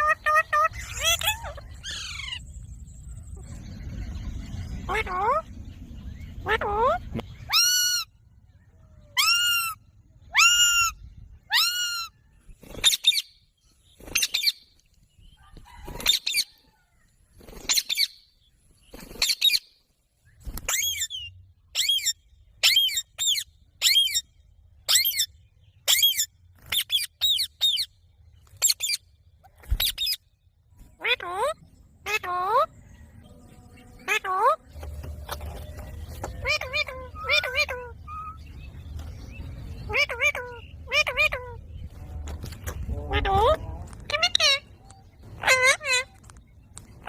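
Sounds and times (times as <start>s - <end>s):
parrot shrill calls: 0.0s - 2.4s, 6.4s - 8.1s, 9.2s - 12.2s, 20.7s - 24.2s, 36.4s - 38.4s, 39.9s - 41.6s, 45.4s - 46.1s.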